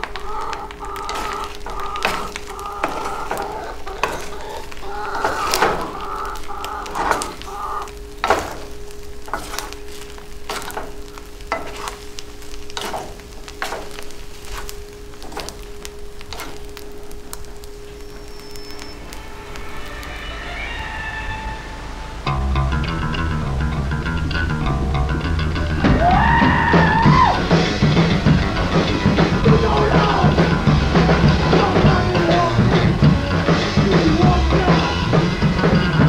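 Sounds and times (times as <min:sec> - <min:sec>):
wooden spatula scraping: 0:00.0 - 0:20.5
eggs sizzling in a pan: 0:00.0 - 0:36.0.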